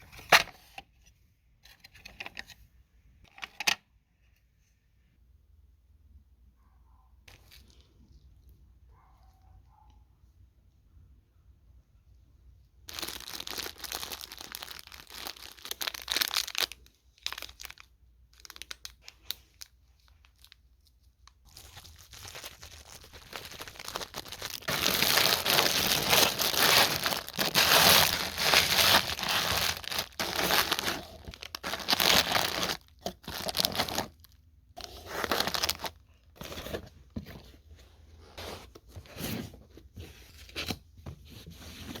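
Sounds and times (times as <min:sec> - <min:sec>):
dry crinkling and rustling: 0:12.9 - 0:36.8.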